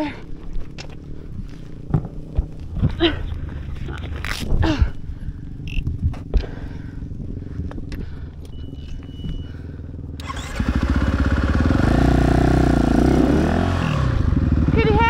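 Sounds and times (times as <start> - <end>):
motorcycle engine revving: 8.6 - 15.0.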